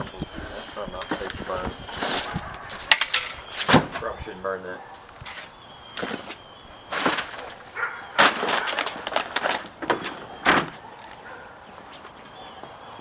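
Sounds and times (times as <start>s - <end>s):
objects clattering and knocking: 0.0s - 4.3s, 5.1s - 11.2s.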